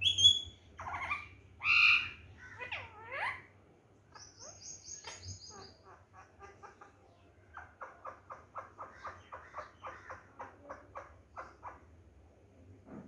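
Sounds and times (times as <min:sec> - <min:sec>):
parrot chirps and piping notes: 0:00.0 - 0:03.5
parrot squawking: 0:00.0 - 0:03.5.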